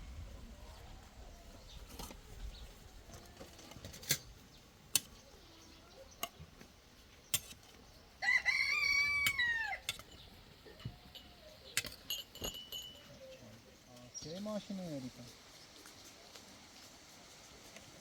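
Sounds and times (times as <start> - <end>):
rooster crowing: 8.2 - 9.9.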